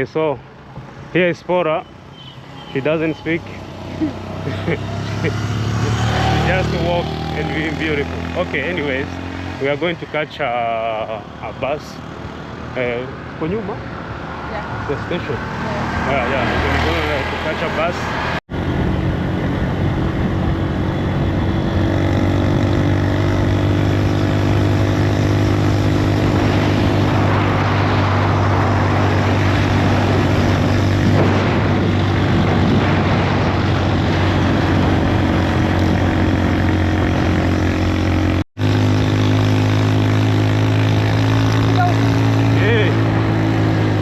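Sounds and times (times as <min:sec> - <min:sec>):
bus engine droning: 0:00.0 - 0:11.7
road noise: 0:00.0 - 0:44.0.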